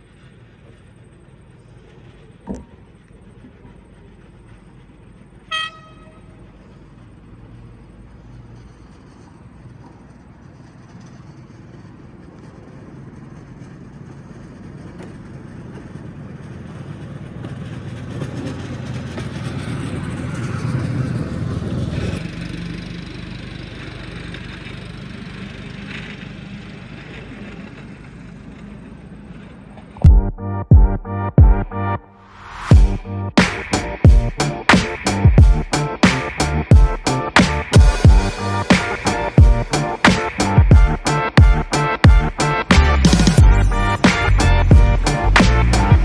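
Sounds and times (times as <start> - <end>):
small rail vehicle engine: 0.0 - 30.6, 32.0 - 46.0
electronic music with heavy beat: 30.1 - 32.0, 32.6 - 46.0.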